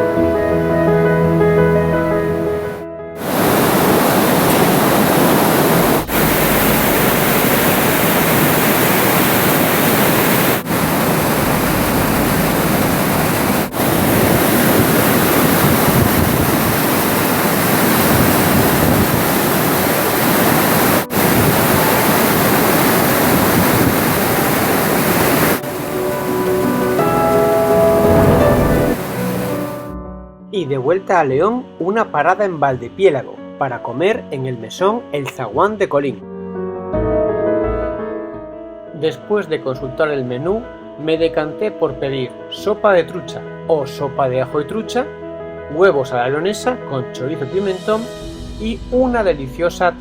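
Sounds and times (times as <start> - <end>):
waterfall rushing: 3.2 - 29.9.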